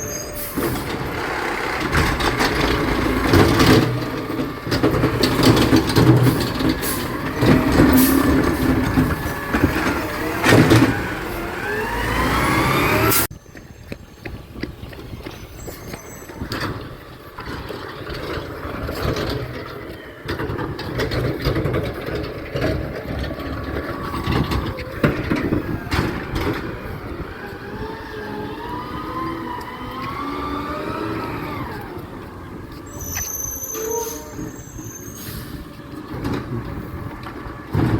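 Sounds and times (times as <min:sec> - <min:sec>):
diesel engine rumbling: 0:00.0 - 0:13.4, 0:14.0 - 0:37.9
metallic clanks and bangs: 0:00.5 - 0:11.6.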